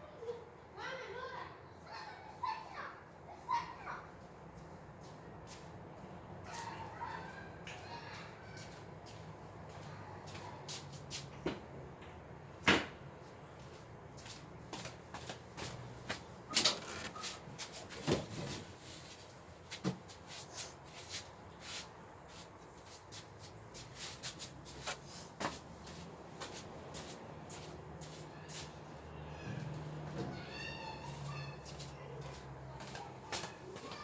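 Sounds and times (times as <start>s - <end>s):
crib parts knocking and rattling: 15.2s - 18.8s.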